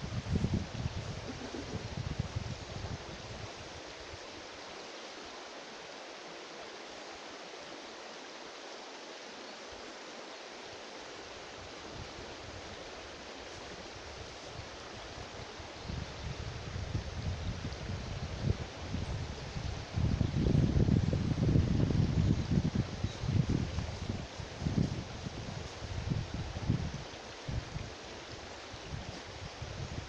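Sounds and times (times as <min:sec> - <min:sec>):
wind buffeting microphone: 0:00.0 - 0:03.5, 0:13.8 - 0:30.0
river water rushing: 0:01.2 - 0:17.6.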